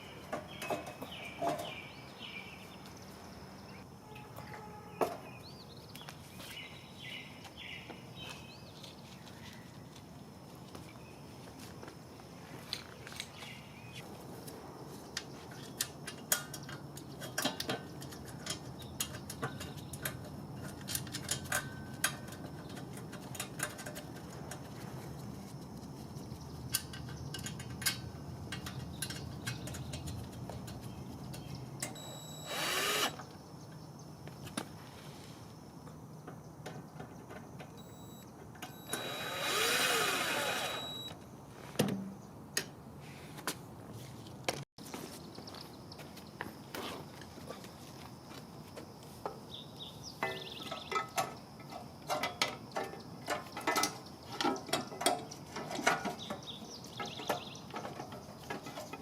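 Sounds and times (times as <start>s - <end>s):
power tool motor: 32.0s - 33.2s, 37.8s - 41.1s
clicks and knocks of hand tools: 50.2s - 59.0s.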